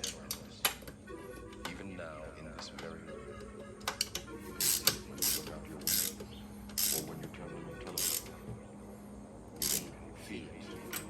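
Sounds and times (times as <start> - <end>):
faint steady hum: 0.0 - 11.0
ratchet wrench clicking: 4.6 - 7.1, 8.0 - 8.3, 9.6 - 9.9.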